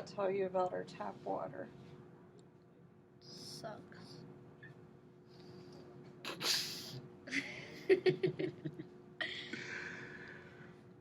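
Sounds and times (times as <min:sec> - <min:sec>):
faint electrical hum: 0:00.0 - 0:11.0
people breathing and laughing: 0:09.2 - 0:10.9.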